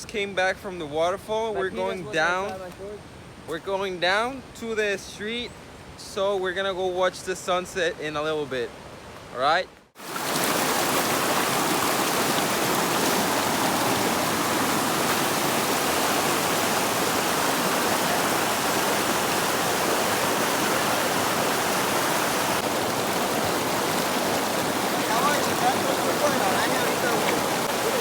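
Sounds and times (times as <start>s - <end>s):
water rushing over rocks: 10.0s - 28.0s.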